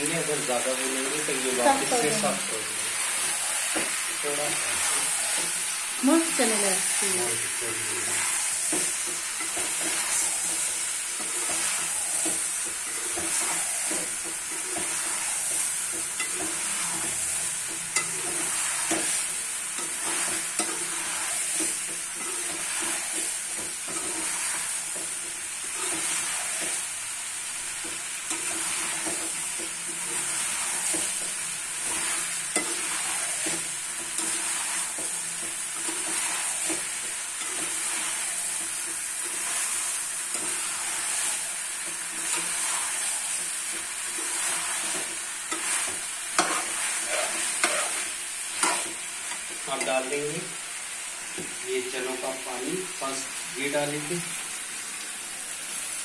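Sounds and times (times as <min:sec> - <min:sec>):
food sizzling in a pot: 0:00.0 - 0:56.0
utensil scraping a pot: 0:08.0 - 0:26.8, 0:27.8 - 0:50.0.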